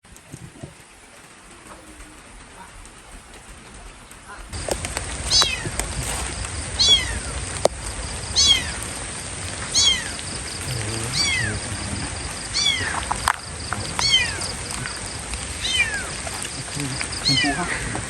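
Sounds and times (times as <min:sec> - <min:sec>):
kitten meowing: 0:05.3 - 0:07.4, 0:08.3 - 0:09.0, 0:09.6 - 0:11.6, 0:12.5 - 0:13.2, 0:14.0 - 0:15.0, 0:15.6 - 0:16.6, 0:17.2 - 0:17.7.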